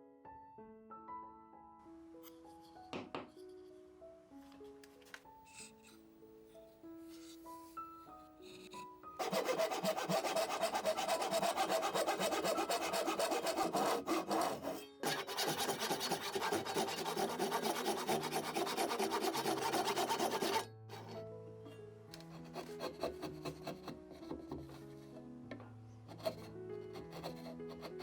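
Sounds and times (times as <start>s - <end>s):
hand tool rasping wood: 9.2s - 21.2s, 22.2s - 24.9s, 26.1s - 28.0s.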